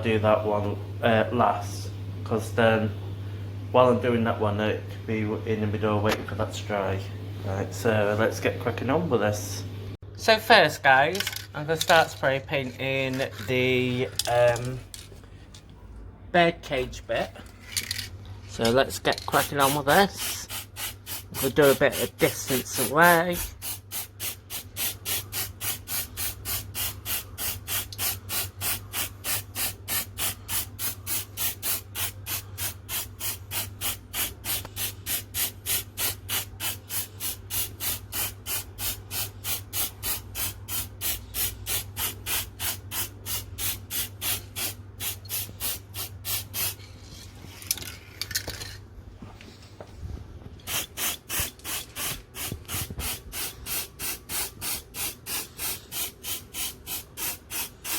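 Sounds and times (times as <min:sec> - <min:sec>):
aerosol spray can pulses: 0:50.7 - 0:57.9.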